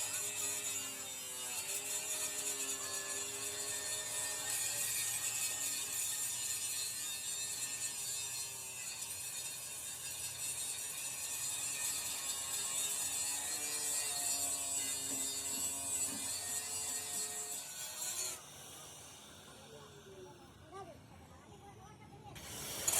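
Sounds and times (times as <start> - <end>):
machine running with hiss: 22.4 - 22.9.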